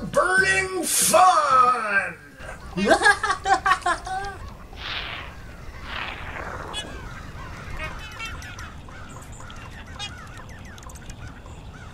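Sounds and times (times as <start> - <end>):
flock of birds calling: 2.4 - 11.9.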